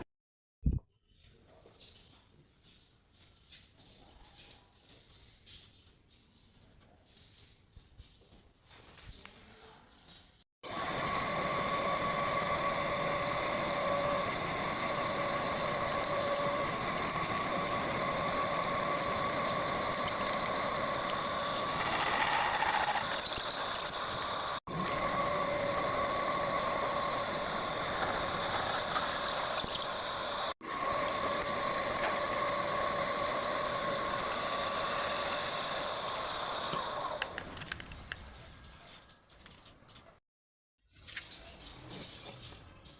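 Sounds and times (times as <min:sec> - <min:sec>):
drilling machine whining: 0:10.6 - 0:37.6.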